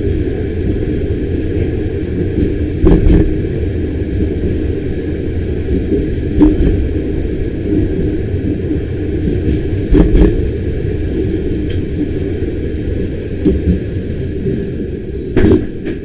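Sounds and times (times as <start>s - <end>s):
wheels rumbling on track: 0.0s - 16.0s
sharp knocks: 9.9s - 10.6s, 15.4s - 16.0s.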